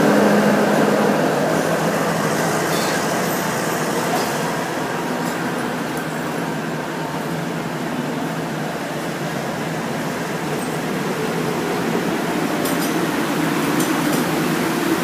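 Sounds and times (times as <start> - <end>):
train wheels rumbling past: 0.0 - 8.2.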